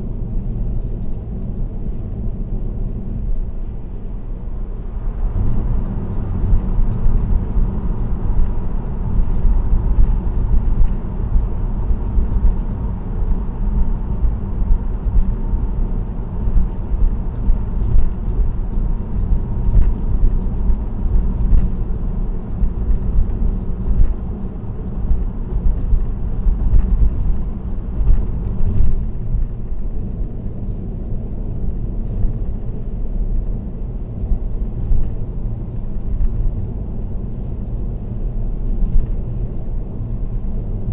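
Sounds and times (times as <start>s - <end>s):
light rattles and ticks: 0.0s - 4.0s, 5.2s - 40.9s
road and tyre rumble: 0.0s - 40.9s.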